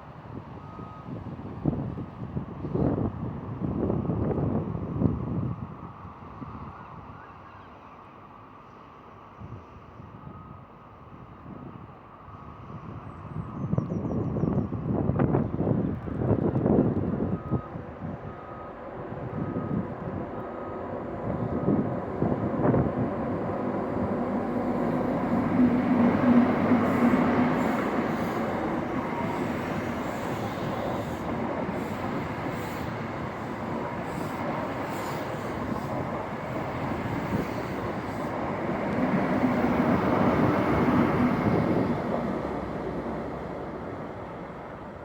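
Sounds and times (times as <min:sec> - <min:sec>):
train coaches rumbling on rails: 0:11.2 - 0:45.0
diesel train engine passing: 0:15.2 - 0:45.0.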